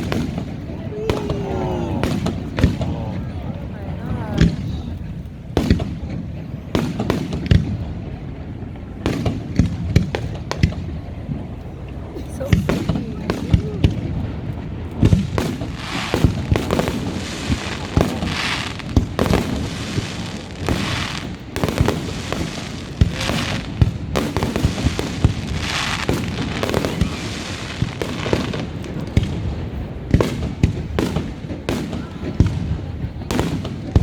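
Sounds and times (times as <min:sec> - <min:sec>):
fireworks booming: 0:00.0 - 0:34.0
fireworks crackling: 0:00.0 - 0:34.0.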